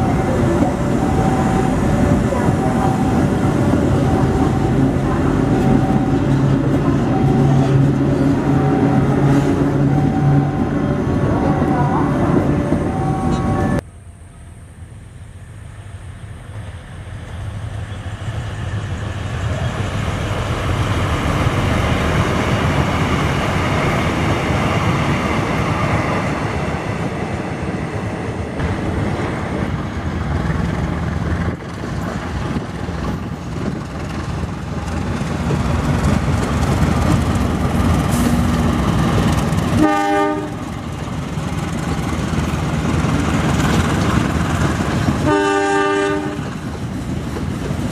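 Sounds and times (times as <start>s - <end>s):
train wheels clattering on rails: 28.6s - 47.9s
train horn blast: 39.7s - 40.8s, 45.2s - 46.5s.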